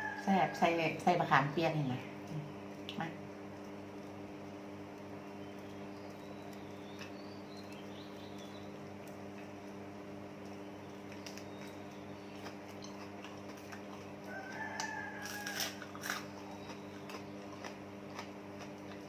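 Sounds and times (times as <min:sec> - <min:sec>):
rooster crowing: 0:00.0 - 0:00.7, 0:14.2 - 0:16.2
steady low hum: 0:00.0 - 0:19.0.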